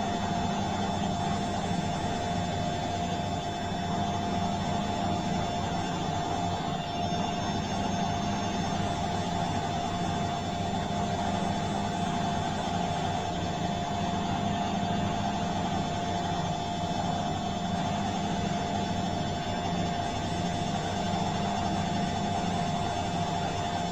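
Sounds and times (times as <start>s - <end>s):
washing machine humming and whining: 0.0s - 23.9s.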